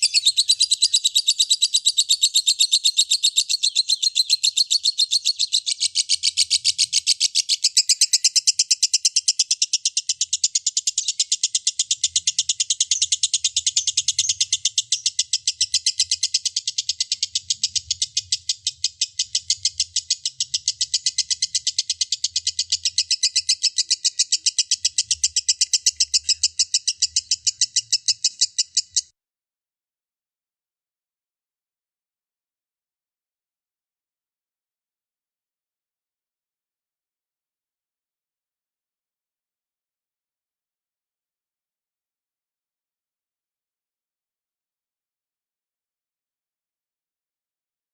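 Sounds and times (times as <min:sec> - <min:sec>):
lovebird chattering: 0:00.0 - 0:29.1.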